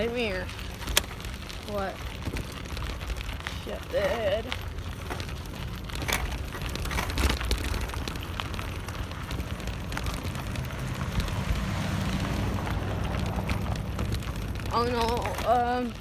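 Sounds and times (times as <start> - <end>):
bicycle rattles and clicks: 0.0 - 16.0
bicycle tyres rumbling on dirt: 0.0 - 16.0.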